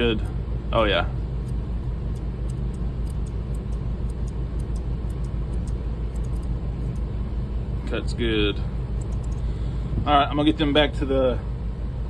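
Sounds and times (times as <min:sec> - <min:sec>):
machinery humming: 0:00.0 - 0:12.0
grooming shears snipping: 0:01.5 - 0:07.1, 0:08.9 - 0:09.4.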